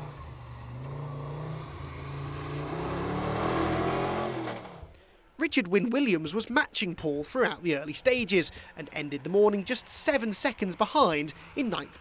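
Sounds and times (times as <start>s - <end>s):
engine accelerating hard: 0.0s - 4.9s.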